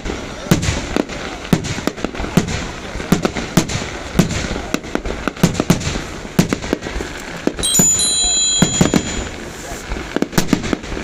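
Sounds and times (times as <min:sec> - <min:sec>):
fireworks banging and popping: 0:00.0 - 0:11.0
high steady whistling tone: 0:07.6 - 0:09.4.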